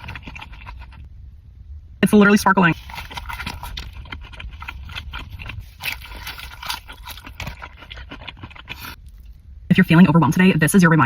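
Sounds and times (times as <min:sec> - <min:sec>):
chewing with wet mouth clicks: 0:00.0 - 0:01.1, 0:02.8 - 0:09.4.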